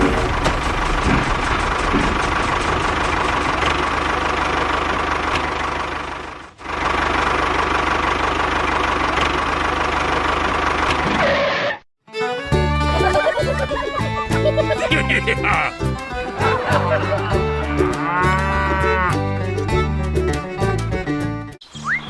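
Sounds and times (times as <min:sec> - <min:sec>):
small engine running with rattle: 0:00.0 - 0:11.6.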